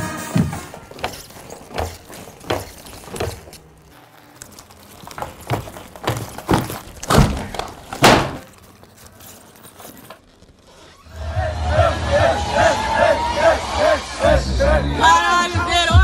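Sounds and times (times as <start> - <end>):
thuds on wooden stage floor: 6.1 - 8.4.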